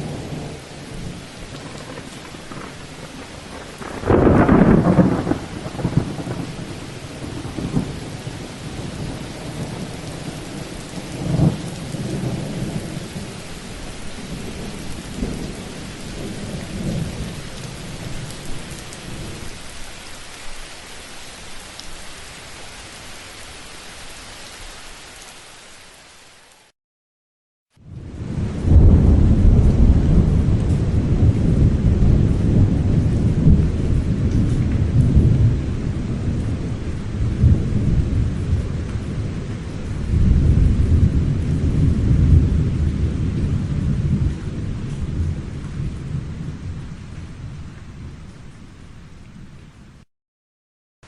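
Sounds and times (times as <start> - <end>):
thunder clap and rumbles: 0.0 - 19.4, 27.8 - 48.4
steady rain: 0.0 - 26.7, 27.7 - 50.1.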